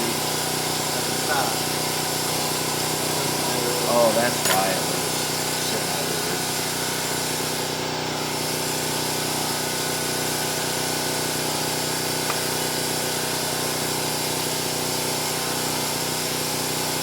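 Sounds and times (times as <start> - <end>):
machine humming: 0.0 - 16.8.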